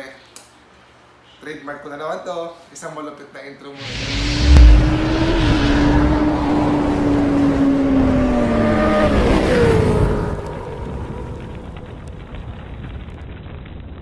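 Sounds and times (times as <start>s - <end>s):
fast vehicle engine passing: 3.8s - 11.9s.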